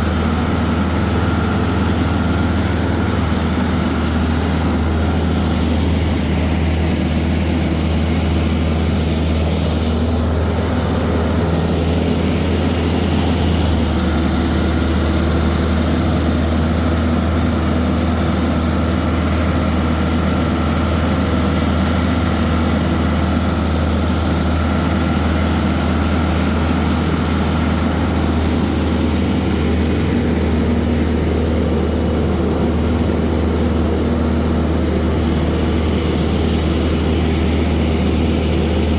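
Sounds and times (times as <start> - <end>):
tractor engine droning: 0.0 - 38.9.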